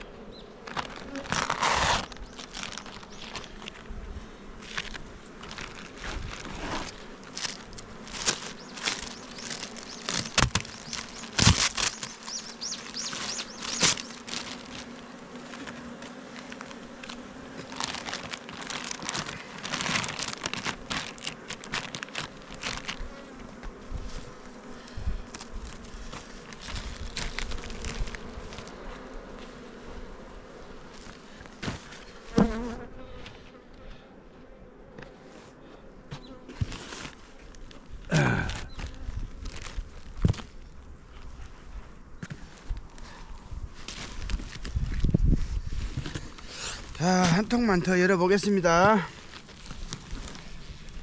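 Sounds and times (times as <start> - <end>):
bees buzzing: 0.0 - 40.1
wooden hive frames knocking: 8.1 - 14.7.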